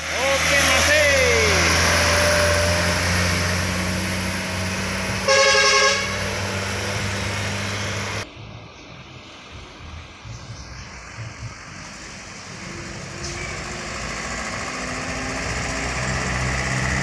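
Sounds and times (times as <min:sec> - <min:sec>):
horn blast: 0:00.0 - 0:08.2
heavy vehicle passing: 0:00.0 - 0:08.3, 0:10.9 - 0:17.0.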